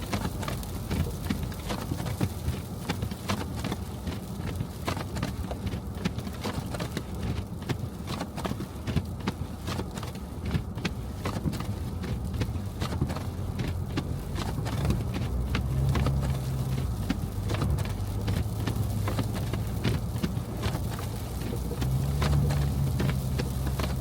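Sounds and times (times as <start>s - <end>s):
car engine and road hum: 0.0s - 24.0s.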